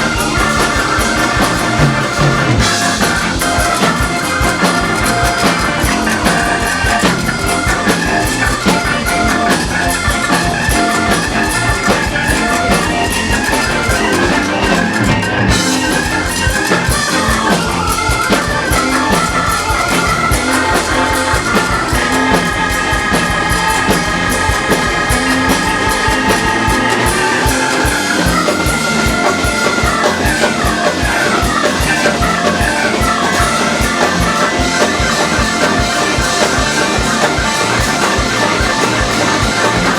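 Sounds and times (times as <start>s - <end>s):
drum kit beat: 0.0s - 39.9s
electric guitar lines: 0.0s - 39.9s.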